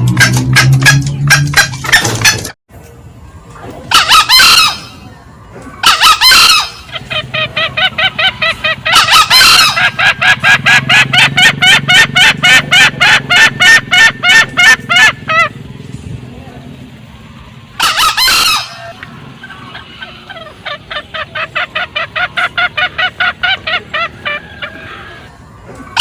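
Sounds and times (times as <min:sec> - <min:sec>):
junglefowl crowing: 0:03.9 - 0:05.1, 0:05.7 - 0:15.6, 0:17.7 - 0:26.0
junglefowl cackling: 0:03.9 - 0:15.6, 0:17.7 - 0:26.0.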